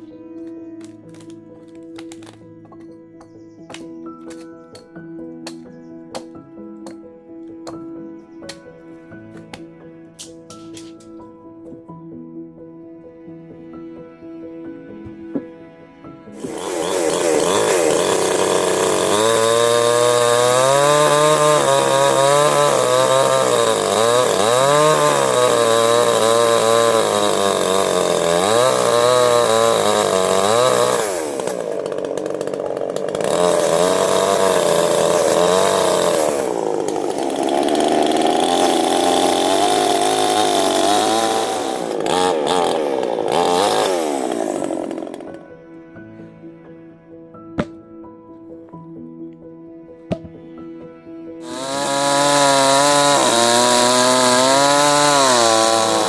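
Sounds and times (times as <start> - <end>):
soft background music: 0.0 - 37.2, 38.0 - 56.0
chainsaw revving: 16.4 - 45.4, 51.4 - 56.0.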